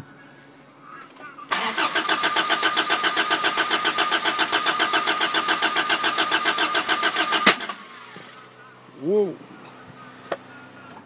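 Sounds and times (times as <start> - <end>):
engine cranking on starter motor: 1.5 - 8.4.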